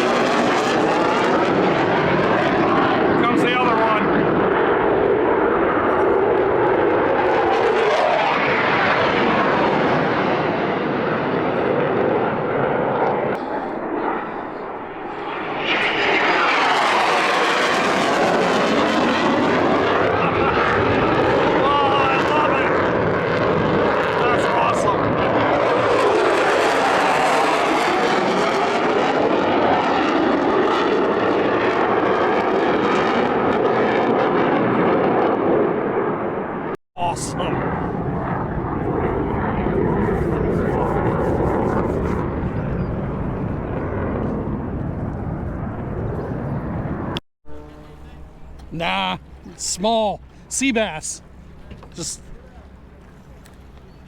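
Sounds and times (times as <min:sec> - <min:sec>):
fighter jet roaring overhead: 0:00.0 - 0:53.8.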